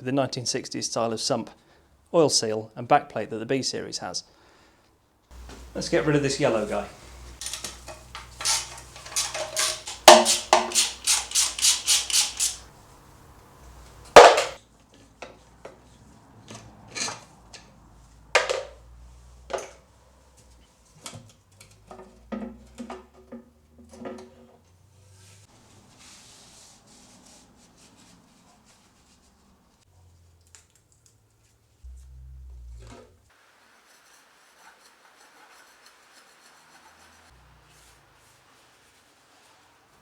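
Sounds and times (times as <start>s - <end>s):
hand tools clanking on metal: 5.3s - 12.7s.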